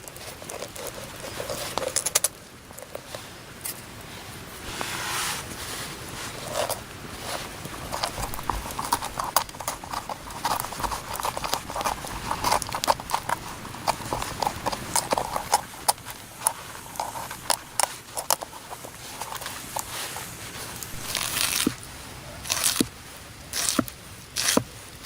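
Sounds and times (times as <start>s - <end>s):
hollow knocks and clicks: 7.8s - 21.8s.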